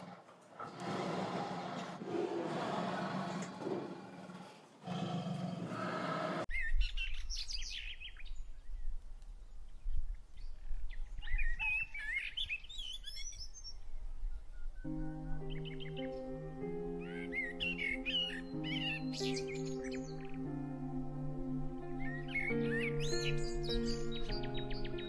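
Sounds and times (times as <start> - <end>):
lion growling roar: 0.0 - 6.5
small birds chirping: 6.3 - 20.5, 22.0 - 25.0.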